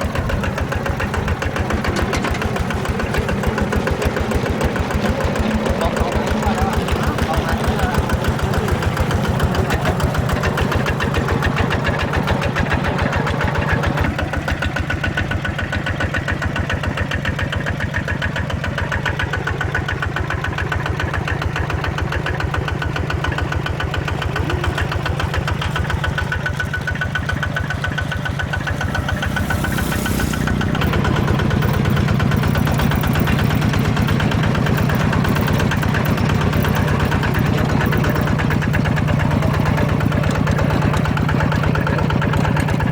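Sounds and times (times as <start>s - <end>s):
small diesel engine chugging: 0.0s - 42.9s.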